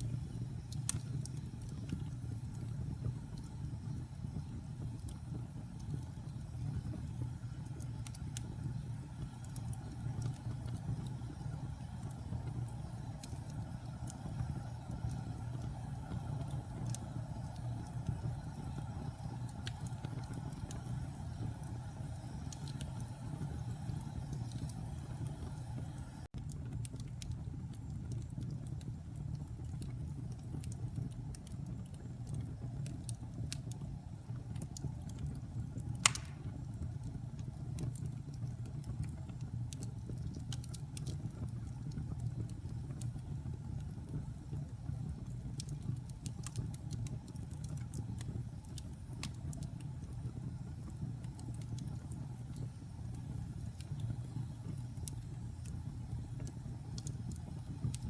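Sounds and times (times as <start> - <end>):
wood fire crackling: 0.0 - 58.0
sharp pop from fire: 36.0 - 36.7.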